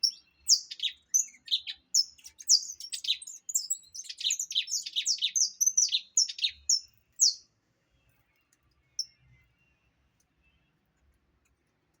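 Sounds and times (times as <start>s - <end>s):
finch chirping: 0.0s - 7.4s.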